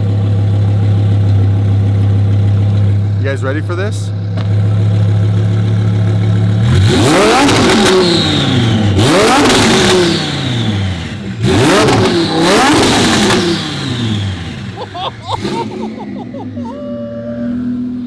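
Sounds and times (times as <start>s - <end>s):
sports car engine revving: 4.2s - 16.4s.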